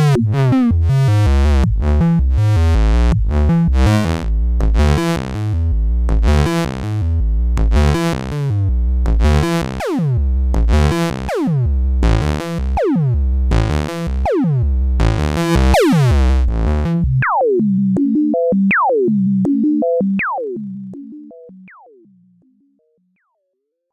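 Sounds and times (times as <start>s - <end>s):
heavy rhythmic low pulses: 0.0s - 22.4s
synthesizer repeating notes: 9.2s - 23.0s.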